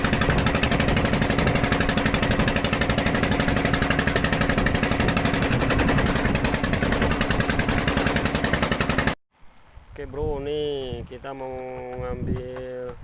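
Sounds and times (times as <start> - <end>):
small engine running: 0.0 - 9.2.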